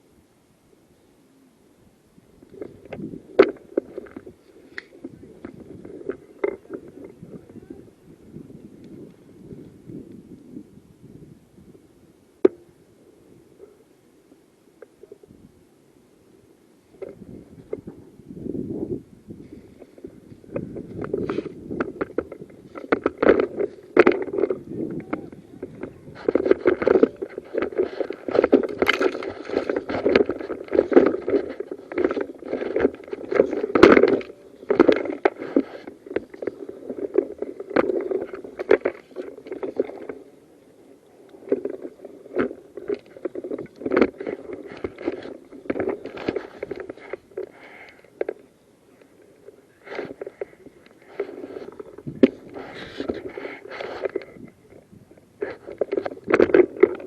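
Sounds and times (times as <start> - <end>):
rustling through undergrowth: 16.8 - 57.0.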